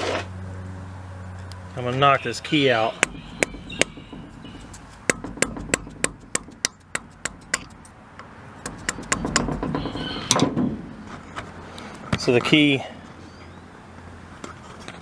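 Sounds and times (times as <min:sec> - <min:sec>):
sharp metal-on-metal taps: 0:03.0 - 0:11.1.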